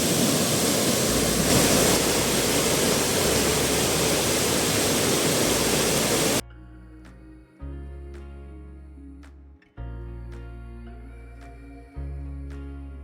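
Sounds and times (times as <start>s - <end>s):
waterfall pouring into pool: 0.0s - 6.4s.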